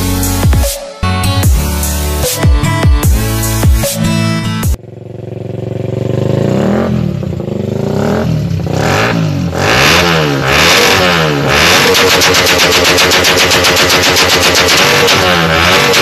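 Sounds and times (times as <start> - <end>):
dubstep music: 0.0 - 4.8, 11.6 - 16.0
motorcycle engine revving: 4.7 - 16.0.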